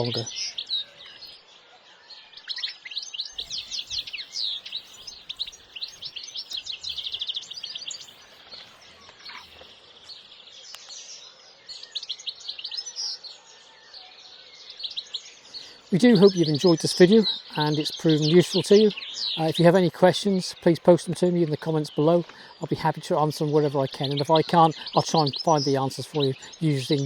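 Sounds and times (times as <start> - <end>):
songbirds chirping and trilling: 0.0 - 27.0.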